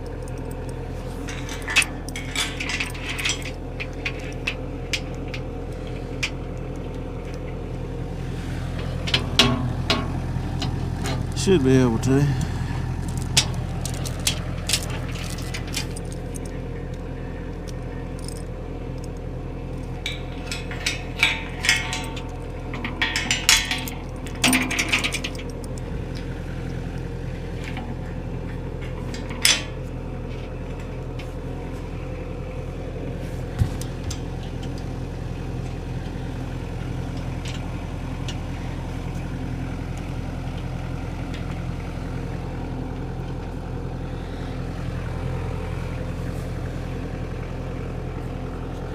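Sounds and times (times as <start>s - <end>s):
metallic clinks and clanks: 0.0s - 7.5s, 8.7s - 26.8s, 27.6s - 31.1s
engine idling: 0.0s - 48.9s
metal knocks: 8.8s - 11.3s.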